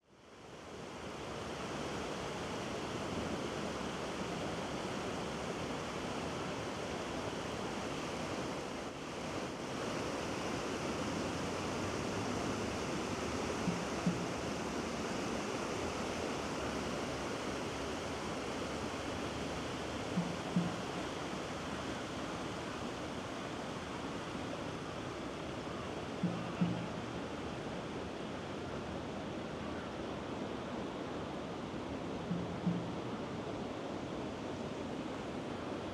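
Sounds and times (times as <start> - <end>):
river water rushing: 0.2 - 35.9
short soft knocks: 13.6 - 14.4, 20.2 - 21.0, 26.2 - 27.2, 32.3 - 33.1.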